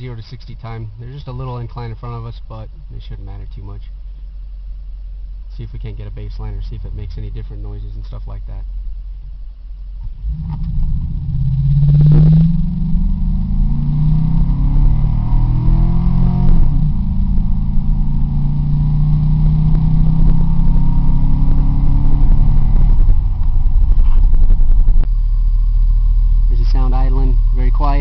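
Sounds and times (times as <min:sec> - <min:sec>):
car engine accelerating hard: 0:10.0 - 0:28.0.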